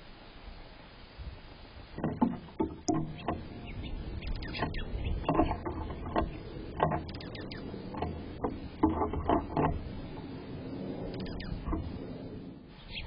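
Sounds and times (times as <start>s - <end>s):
low rumble: 1.1s - 13.0s
birds tapping and knocking: 2.0s - 12.3s
high bird chirps: 2.9s - 8.1s, 11.1s - 11.8s, 12.8s - 13.0s.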